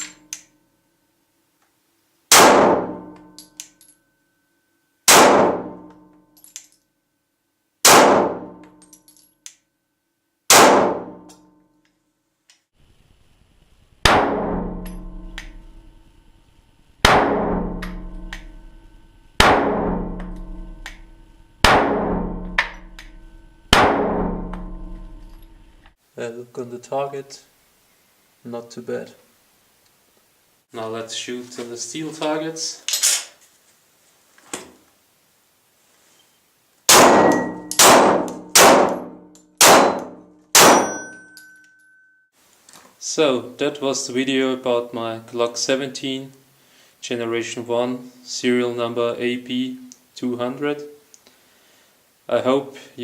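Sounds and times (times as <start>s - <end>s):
metallic clang off steel target: 0.0s - 0.5s, 14.1s - 15.8s, 17.0s - 25.6s, 36.9s - 42.1s
pistol shots with echo: 2.3s - 3.2s, 5.1s - 5.9s, 7.8s - 8.6s, 10.5s - 11.2s, 14.0s - 15.0s, 17.0s - 18.1s, 19.4s - 20.2s, 21.6s - 23.1s, 36.9s - 41.2s.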